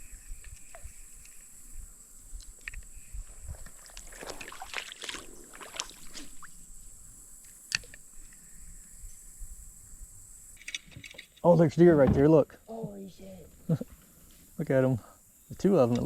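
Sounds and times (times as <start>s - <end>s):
water splashing around boat: 3.7s - 6.6s.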